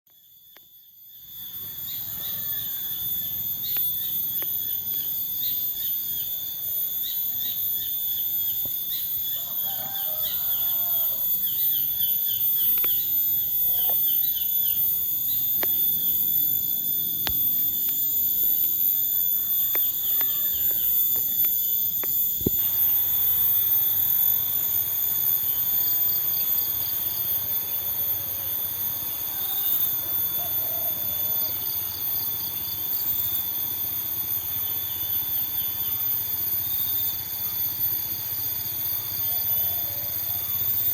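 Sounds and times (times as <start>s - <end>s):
high drone of insects: 0.1s - 40.9s
birds chirping: 10.1s - 16.3s.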